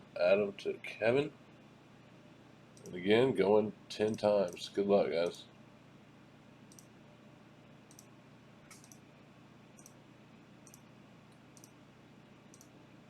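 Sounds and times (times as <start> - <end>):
faint computer mouse clicks: 6.7 - 6.9, 7.9 - 8.1, 8.7 - 9.0, 9.8 - 10.0, 10.6 - 11.8, 12.5 - 12.7.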